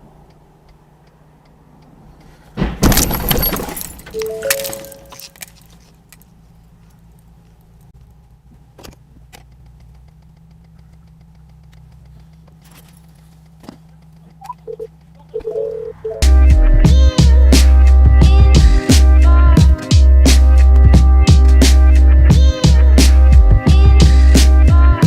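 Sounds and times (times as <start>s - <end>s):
low vehicle hum: 0.0s - 25.0s
debris and glass tinkling: 2.8s - 6.2s
short beeps: 4.1s - 5.3s, 14.4s - 16.2s
sharp clicks: 8.8s - 12.7s.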